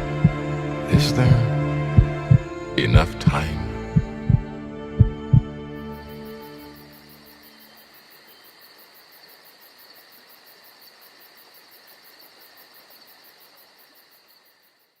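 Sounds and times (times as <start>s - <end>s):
crickets chirring: 5.8s - 15.0s.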